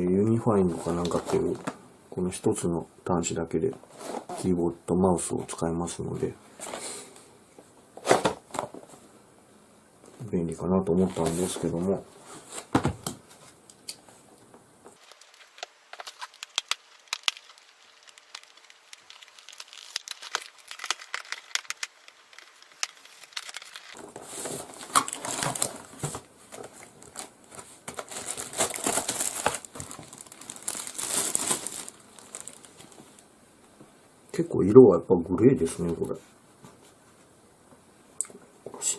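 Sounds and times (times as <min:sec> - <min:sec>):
plastic wrapping crinkling: 0:00.7 - 0:01.7, 0:10.9 - 0:12.8, 0:15.0 - 0:33.2.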